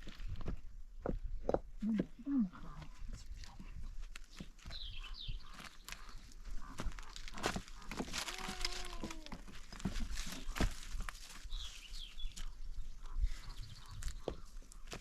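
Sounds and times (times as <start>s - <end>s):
farm animal bleating: 8.1s - 9.5s.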